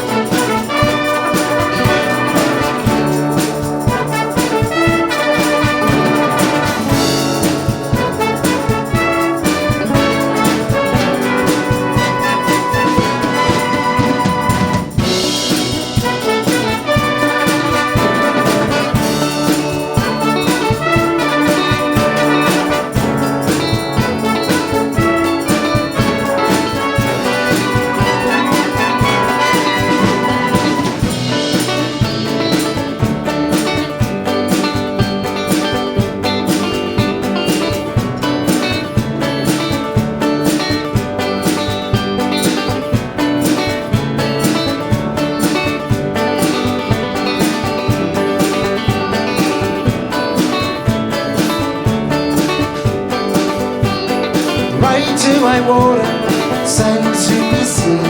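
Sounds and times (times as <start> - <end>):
brass band playing: 0.0 - 58.0.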